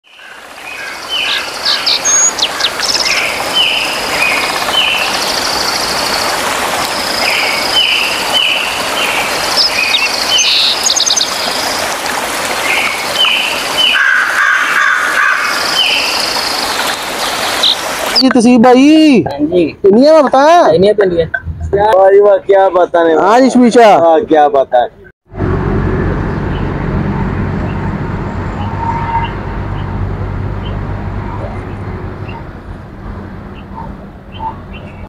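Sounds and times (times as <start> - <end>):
birds chirping and trilling: 0.0 - 18.3, 27.6 - 32.6, 33.4 - 35.0
low pulsing bird call: 12.6 - 16.8.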